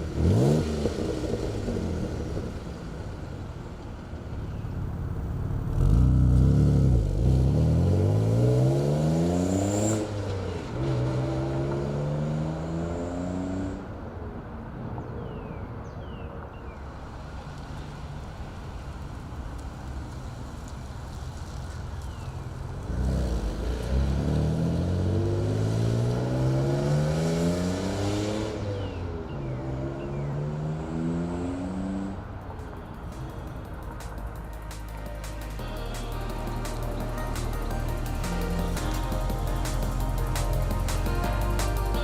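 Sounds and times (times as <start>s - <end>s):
car engine accelerating hard: 0.0s - 3.1s, 4.9s - 13.9s, 22.8s - 32.4s.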